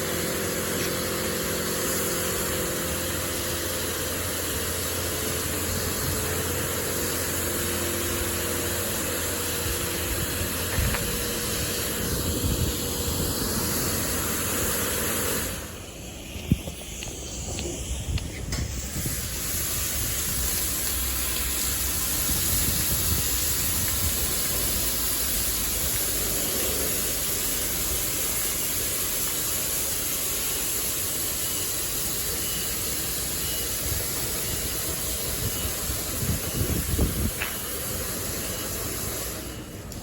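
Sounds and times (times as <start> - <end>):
car wash hissing rush: 0.0 - 40.0.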